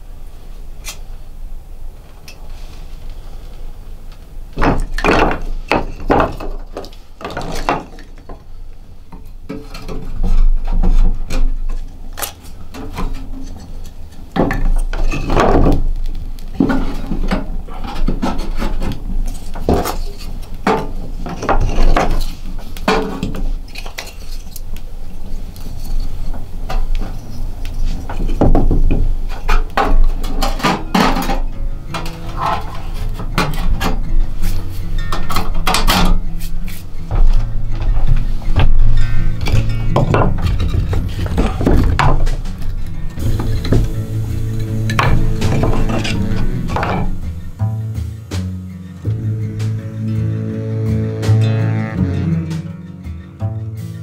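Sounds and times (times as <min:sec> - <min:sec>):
low steady rumble: 0:31.6 - 0:53.8.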